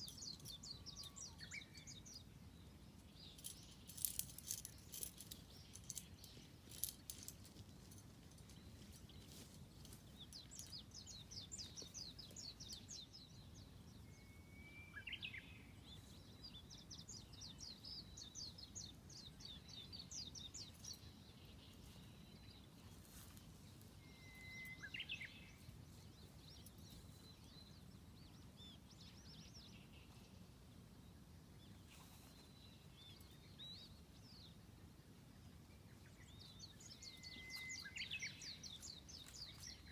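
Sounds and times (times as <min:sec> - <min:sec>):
songbirds trilling: 0:00.0 - 0:39.9
short whistled bird call: 0:24.0 - 0:25.3.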